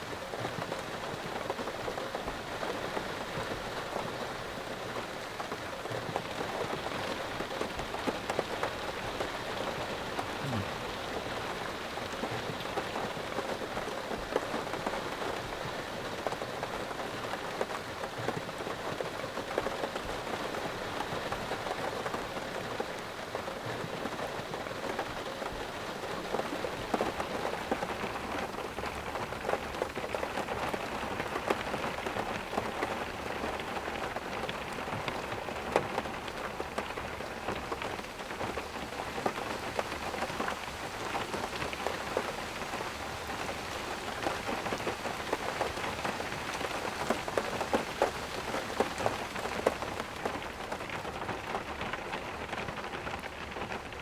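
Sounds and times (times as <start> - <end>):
heavy rain: 0.0 - 54.0
raindrops pattering on surface: 0.0 - 54.0.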